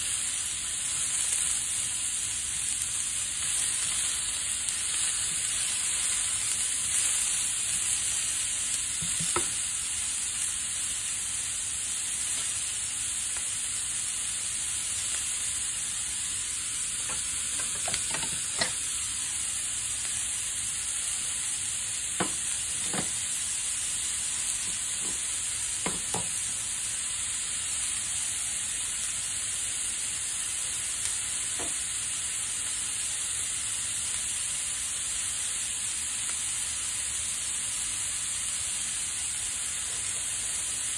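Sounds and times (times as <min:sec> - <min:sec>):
sausages sizzling in a frying pan: 0:00.0 - 0:40.9
utensil stirring in a pan: 0:17.0 - 0:19.0.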